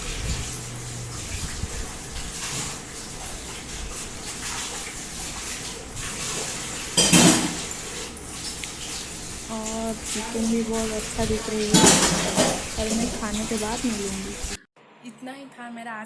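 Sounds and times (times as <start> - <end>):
dishes and cutlery clinking: 2.2 - 14.6
metallic clatter: 7.0 - 7.7, 11.6 - 13.3.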